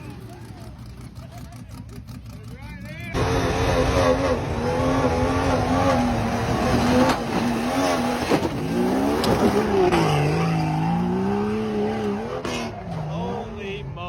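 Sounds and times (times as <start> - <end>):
vehicle engine running under load: 0.0 - 10.4.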